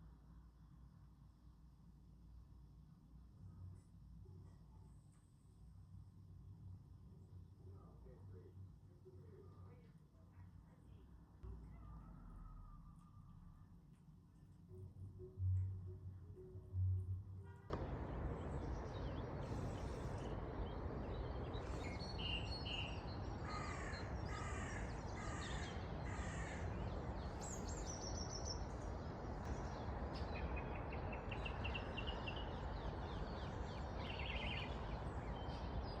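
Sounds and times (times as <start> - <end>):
outdoor background rumble: 0.0 - 36.0
small birds chirping: 17.7 - 36.0
crow cawing: 23.4 - 26.7.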